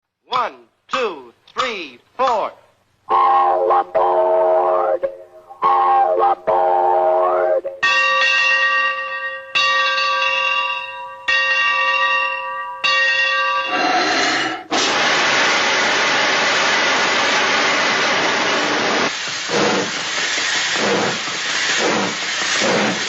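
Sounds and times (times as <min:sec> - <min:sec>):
bell-like metallic ring: 0:07.8 - 0:13.7
loud steady hiss: 0:14.0 - 0:23.0.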